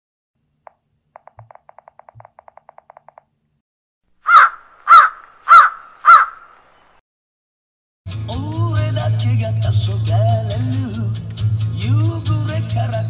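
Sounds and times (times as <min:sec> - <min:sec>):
faint rapid ticks: 0:00.7 - 0:03.3
crow cawing: 0:04.2 - 0:06.4.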